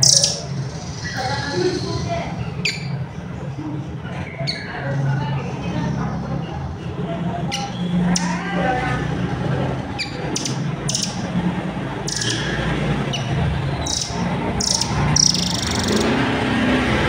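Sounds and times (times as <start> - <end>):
bird chirping and trilling: 0.0 - 3.2, 4.2 - 4.8, 7.4 - 8.6, 9.9 - 16.4
crowd noise: 0.0 - 17.0.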